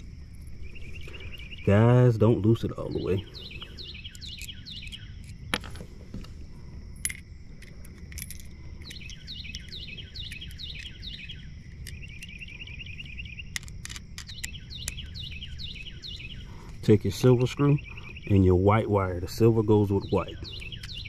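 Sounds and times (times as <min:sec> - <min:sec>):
bird chirping: 0:00.0 - 0:21.0
low outdoor rumble: 0:00.0 - 0:21.0
sharp clicks: 0:08.8 - 0:15.2.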